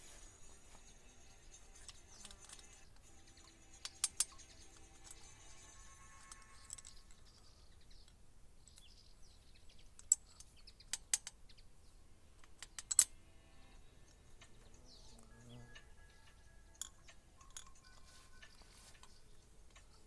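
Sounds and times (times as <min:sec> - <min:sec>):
tools and metal parts clicking: 0:01.6 - 0:08.9, 0:09.9 - 0:11.4, 0:12.4 - 0:13.1, 0:15.8 - 0:20.0.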